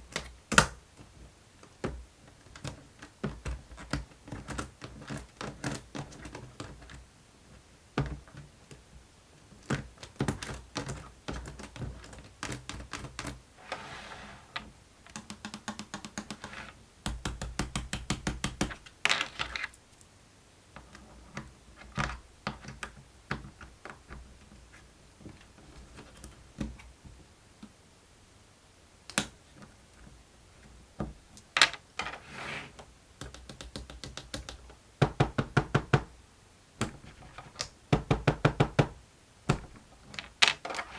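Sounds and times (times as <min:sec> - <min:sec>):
plastic toy clicks and taps: 0:15.1 - 0:16.5, 0:33.2 - 0:35.2.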